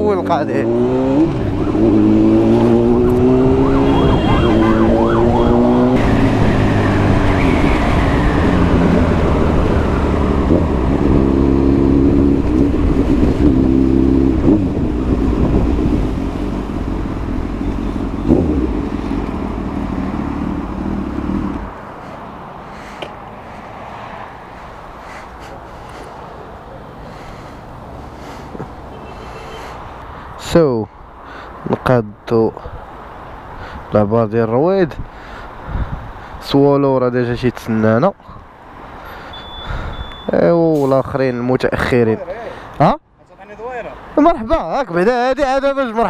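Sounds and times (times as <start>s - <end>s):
motorcycle engine riding: 1.2s - 21.8s.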